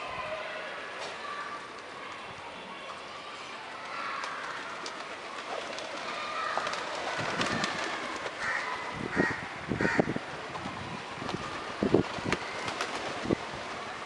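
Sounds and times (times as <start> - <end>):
crows cawing: 8.4 - 10.2.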